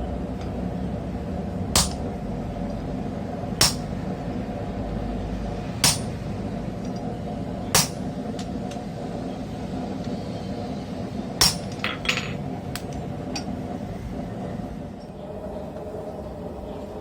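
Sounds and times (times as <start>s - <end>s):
steady low hum: 0.0s - 17.0s
hammer clanging on steel: 1.8s - 2.0s, 3.6s - 4.0s, 5.8s - 6.2s, 7.8s - 8.1s, 11.4s - 13.5s.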